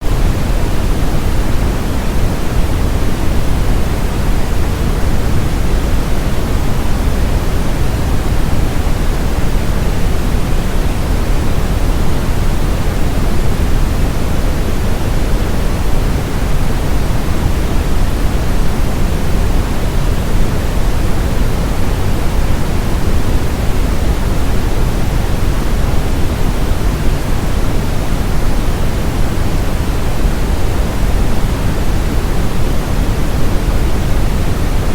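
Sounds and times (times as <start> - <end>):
brown noise hiss: 0.0 - 34.9.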